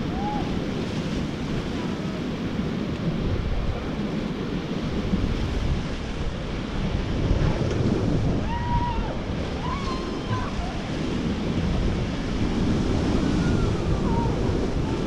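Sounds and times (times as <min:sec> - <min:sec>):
rushing river rapids: 0:00.0 - 0:15.0
wind buffeting microphone: 0:00.0 - 0:15.0.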